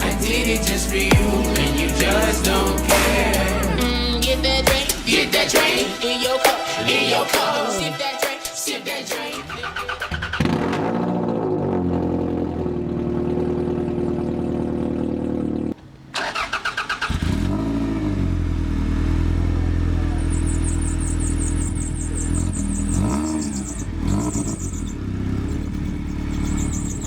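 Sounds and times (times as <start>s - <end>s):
fast high ticking: 0.0s - 7.4s
car engine revving: 0.0s - 7.6s, 9.1s - 27.0s.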